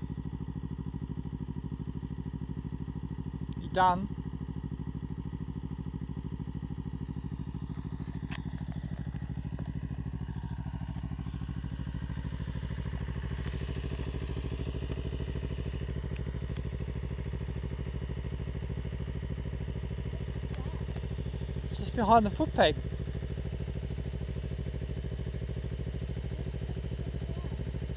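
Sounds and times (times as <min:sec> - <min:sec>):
motorcycle engine idling: 0:00.0 - 0:27.9.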